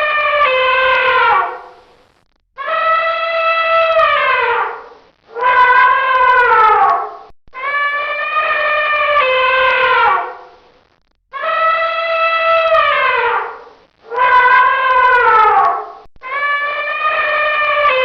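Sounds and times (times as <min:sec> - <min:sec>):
elephant trumpeting: 0:00.0 - 0:01.7.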